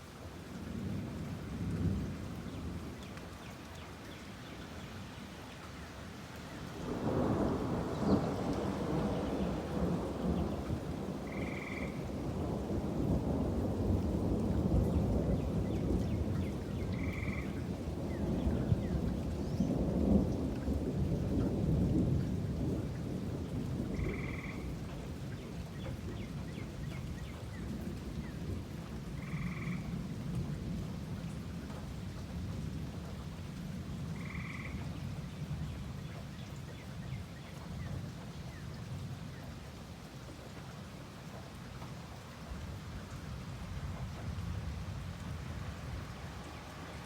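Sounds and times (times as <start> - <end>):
rain falling: 0.0 - 47.0
rolling thunder: 6.8 - 24.8
frog calls: 11.3 - 12.1, 17.0 - 17.6, 24.0 - 24.7, 29.2 - 29.9, 34.2 - 34.9.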